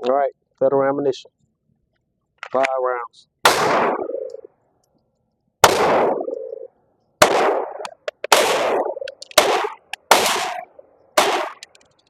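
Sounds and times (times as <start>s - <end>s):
pistol shots with ringing echo: 3.4s - 4.5s, 5.6s - 11.7s.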